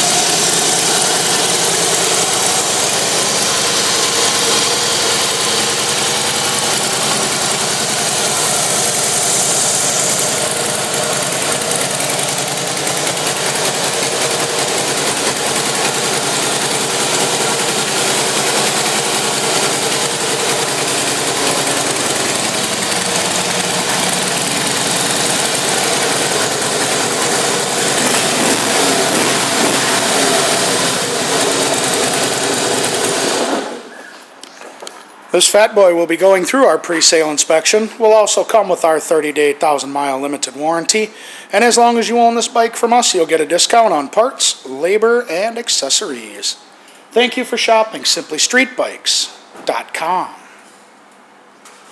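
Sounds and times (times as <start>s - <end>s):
motorcycle engine idling: 0.0s - 33.6s.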